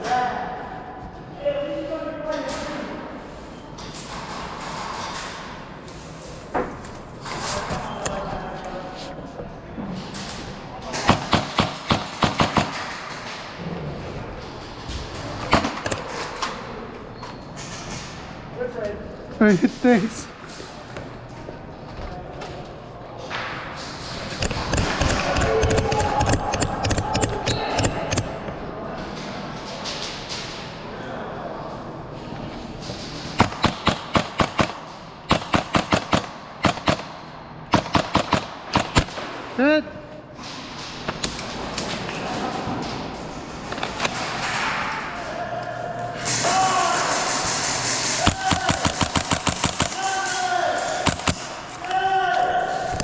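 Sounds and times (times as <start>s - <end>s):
airsoft gun shots: 33.4s - 39.2s, 48.2s - 50.0s, 51.0s - 51.5s.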